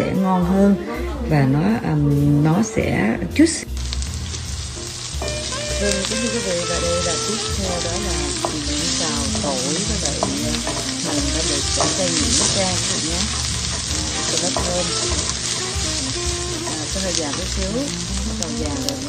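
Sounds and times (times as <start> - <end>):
aromatics sizzling in hot oil: 1.3 - 19.0
wooden spatula stirring in wok: 3.8 - 19.0.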